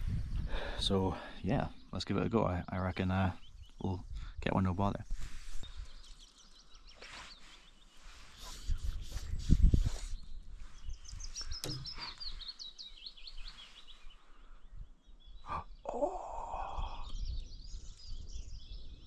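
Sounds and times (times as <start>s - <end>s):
small birds singing: 0.0s - 19.0s
lower rough bird call: 6.8s - 17.9s.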